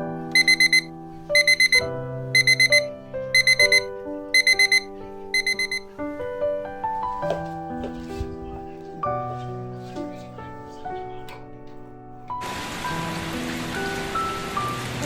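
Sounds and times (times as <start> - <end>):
soft piano music: 0.0 - 15.0
digital alarm beeping: 0.4 - 5.9.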